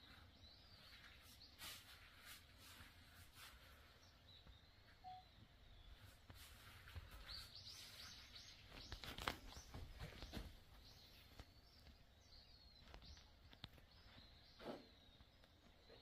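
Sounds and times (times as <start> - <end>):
bird chirping high notes: 5.0 - 5.9
soft rustles and knocks: 6.2 - 12.0.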